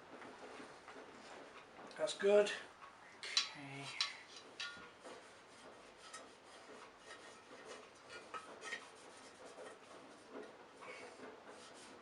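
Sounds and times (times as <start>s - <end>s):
faint rubbing and scraping: 3.3s - 12.0s.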